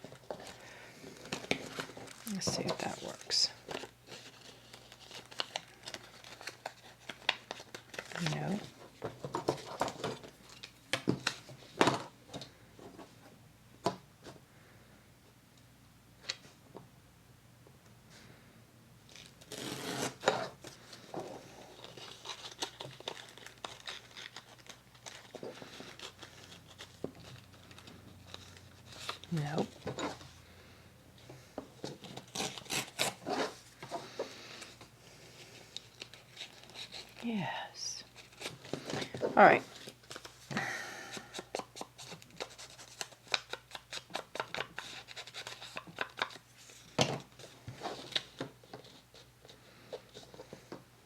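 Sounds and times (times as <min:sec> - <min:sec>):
paper rustling: 0:20.5 - 0:30.3.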